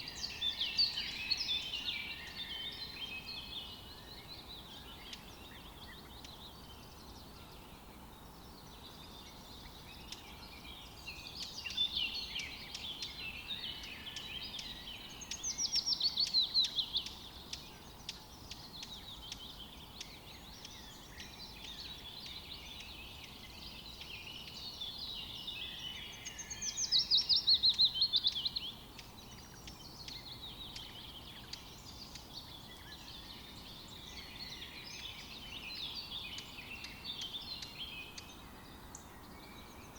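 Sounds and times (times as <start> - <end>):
birds chirping: 0.0 - 39.9
faint outdoor hiss: 0.0 - 39.9.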